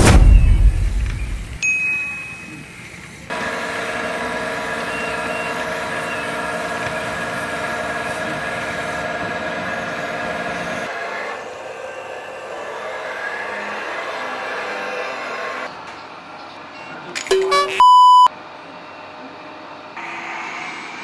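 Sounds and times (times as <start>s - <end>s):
loud thump: 0.0s - 1.6s
hydraulic pump whine: 0.0s - 15.7s.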